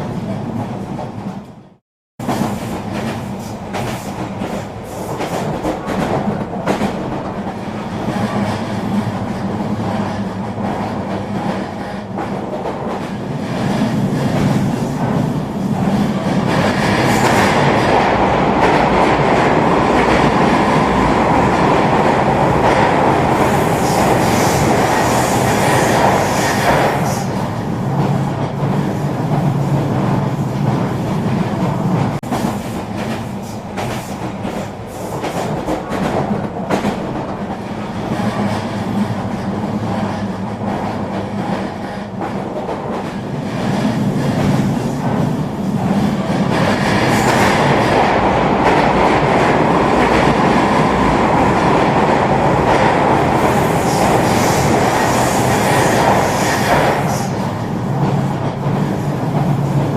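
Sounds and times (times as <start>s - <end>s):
train running on rails: 0.0s - 59.9s.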